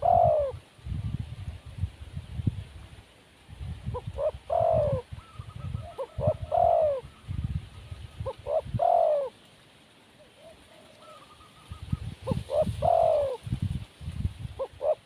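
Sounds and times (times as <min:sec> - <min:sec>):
dove cooing: 0:00.0 - 0:00.6, 0:03.8 - 0:07.2, 0:08.2 - 0:09.4, 0:10.2 - 0:13.5, 0:14.6 - 0:15.0.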